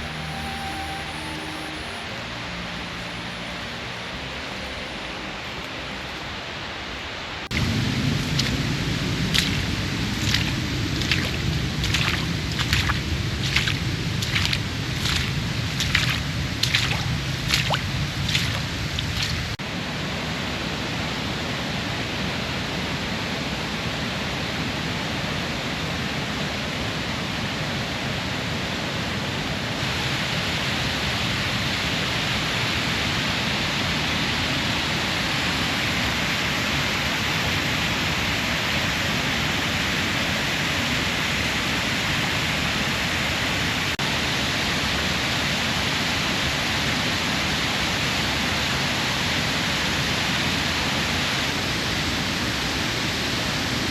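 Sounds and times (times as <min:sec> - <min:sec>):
rushing water: 0:00.0 - 0:21.5, 0:29.4 - 0:53.9.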